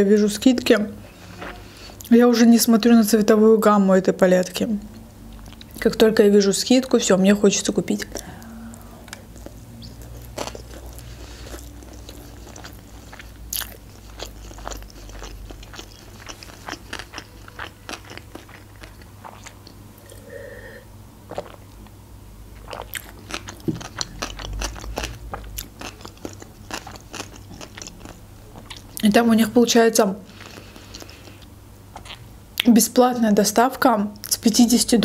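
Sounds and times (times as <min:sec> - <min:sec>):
chewing with wet mouth clicks: 0:04.9 - 0:05.9, 0:09.1 - 0:20.2, 0:22.6 - 0:29.1.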